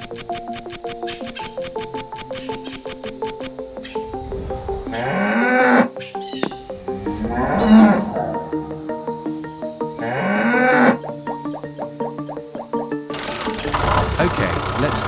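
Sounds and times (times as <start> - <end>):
light background music: 0.0 - 15.0
cow mooing: 4.9 - 5.9, 6.8 - 11.0.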